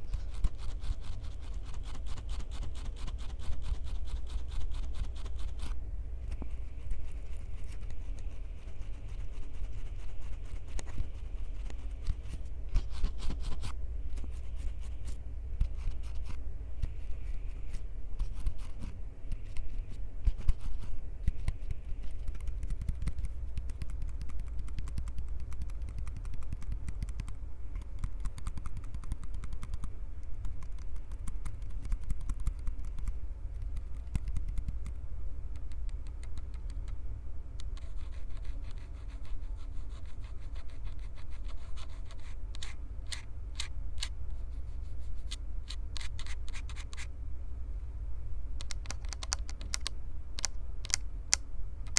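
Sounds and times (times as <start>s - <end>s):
steady low rumble: 0.0s - 51.9s
hands rubbing recorder microphones: 3.0s - 29.8s.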